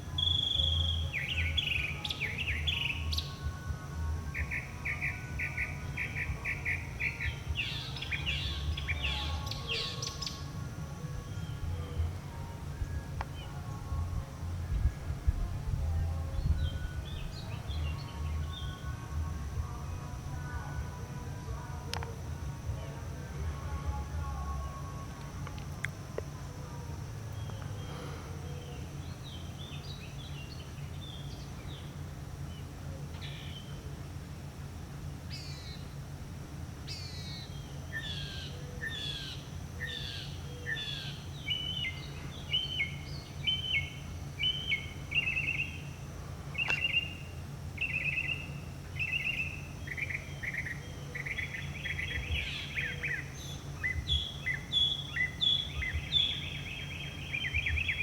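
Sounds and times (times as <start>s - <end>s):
low hum: 0.0s - 58.0s
mockingbird singing: 0.2s - 3.4s, 4.4s - 10.5s, 36.8s - 58.0s.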